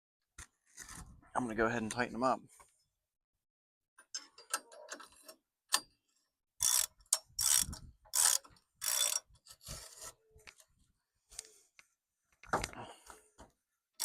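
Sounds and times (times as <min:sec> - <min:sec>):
hand ratchet clicking: 0:06.6 - 0:09.3.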